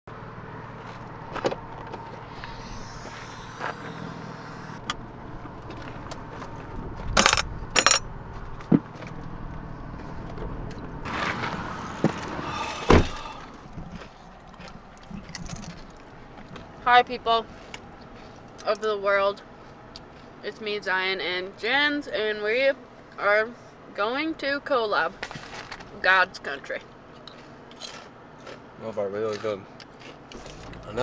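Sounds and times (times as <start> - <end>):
clicks and rattles: 7.2 - 8.0.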